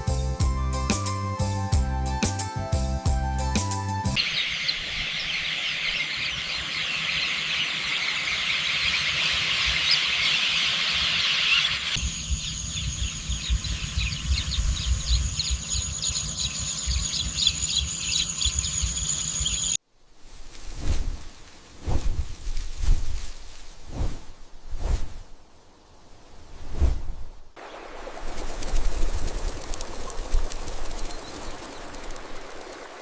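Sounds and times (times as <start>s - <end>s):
insect chorus: 4.2s - 19.8s.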